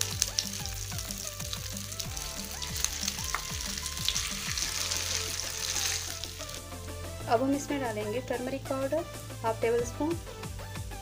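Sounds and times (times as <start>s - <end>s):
potato sizzling in hot oil: 0.0s - 6.7s.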